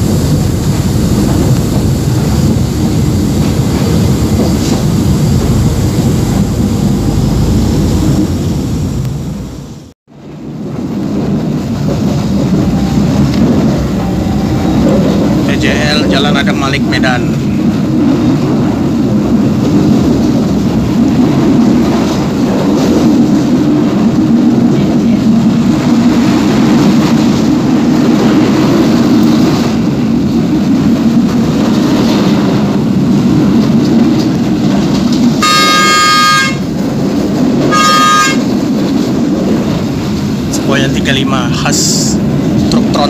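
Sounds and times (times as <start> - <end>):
train rumbling: 0.0 - 43.0
train horn blasts: 12.6 - 15.4, 35.4 - 36.8, 37.7 - 38.6.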